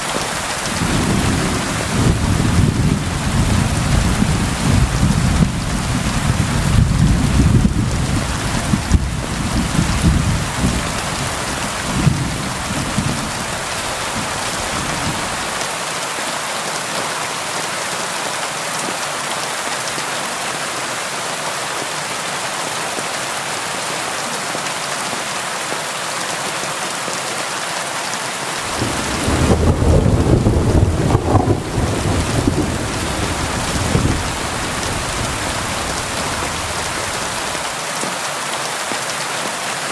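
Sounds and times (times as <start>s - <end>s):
rain against a window: 0.0s - 15.8s, 28.6s - 39.6s
thunder rumbling: 0.4s - 15.6s, 28.7s - 37.6s.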